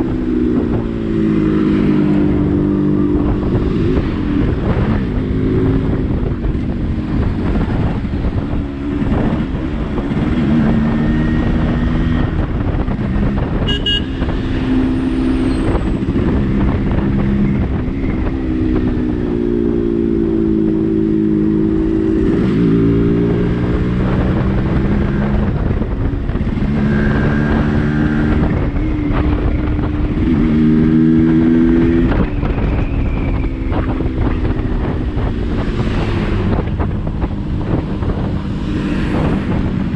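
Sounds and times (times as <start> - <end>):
motorcycle engine accelerating: 0.0 - 39.9
road and wind noise: 0.0 - 39.9.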